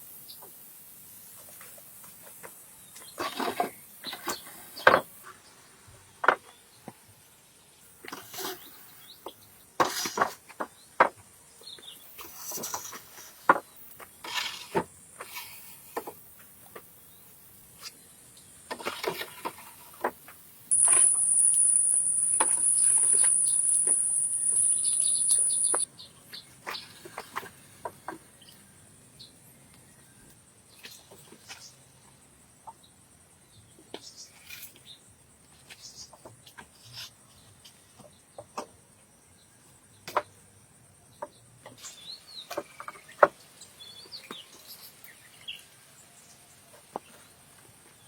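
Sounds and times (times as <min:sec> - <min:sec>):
high-pitched insect buzz: 0:20.7 - 0:25.9.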